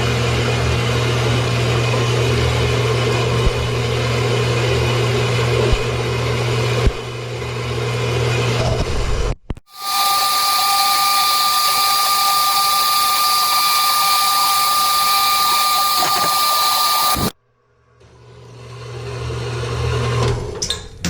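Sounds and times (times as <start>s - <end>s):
bandsaw cutting steel: 9.7s - 17.3s
low hum: 9.7s - 17.3s.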